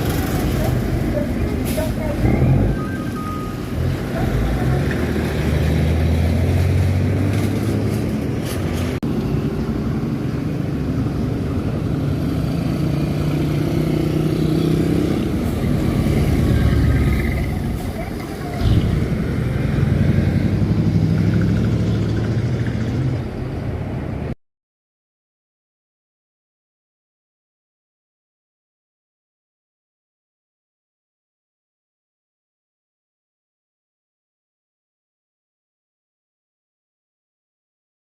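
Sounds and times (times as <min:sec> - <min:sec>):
trucks passing on road: 0:00.0 - 0:24.4.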